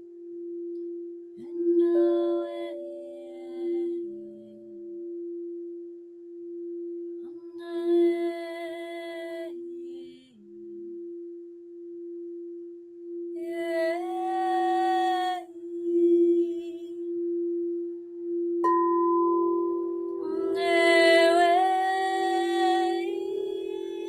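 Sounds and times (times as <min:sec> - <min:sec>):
singing bowl ringing: 0:00.0 - 0:24.0
person singing long notes: 0:20.1 - 0:24.0.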